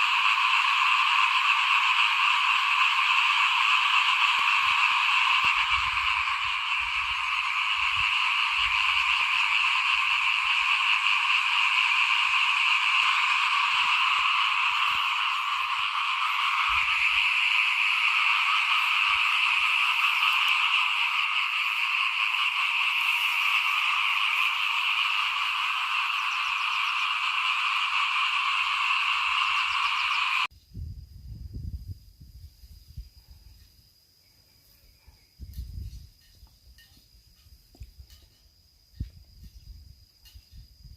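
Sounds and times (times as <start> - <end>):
chorus of frogs calling: 0.0 - 30.5.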